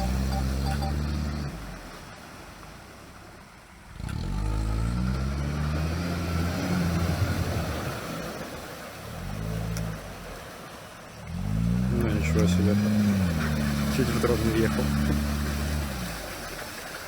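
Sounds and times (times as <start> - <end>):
atv engine under load: 0.0 - 1.7, 11.3 - 17.0.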